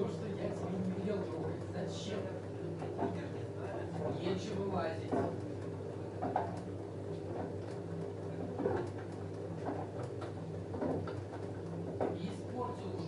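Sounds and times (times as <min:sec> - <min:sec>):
washing machine motor hum: 0:00.0 - 0:13.0.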